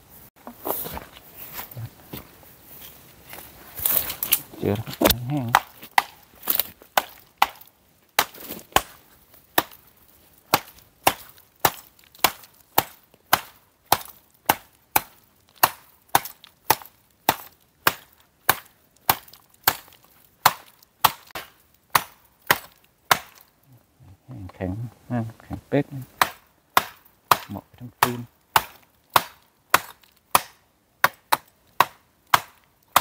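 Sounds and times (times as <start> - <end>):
blade chopping hard wood: 5.0 - 9.8, 10.5 - 23.5, 26.2 - 33.0.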